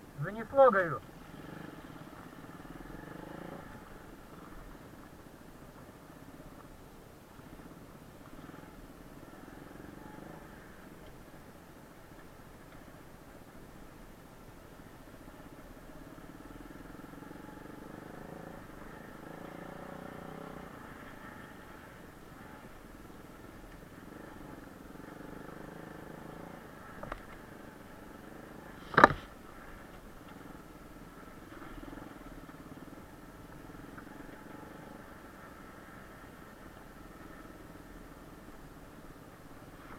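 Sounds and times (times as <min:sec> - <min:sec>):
sharp loud knock: 0:28.9 - 0:29.2.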